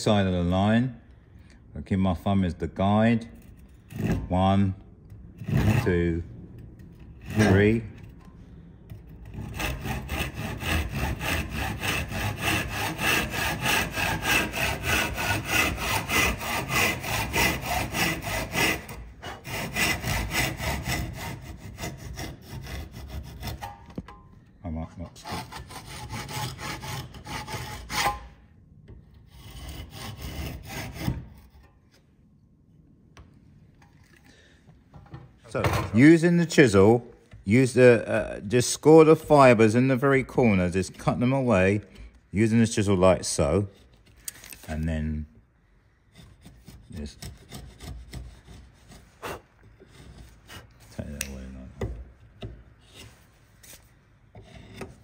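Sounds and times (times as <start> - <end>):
hand saw cutting wood: 5.4 - 6.2, 7.0 - 8.1, 9.2 - 24.0, 25.2 - 28.4, 29.2 - 31.7, 46.0 - 55.0.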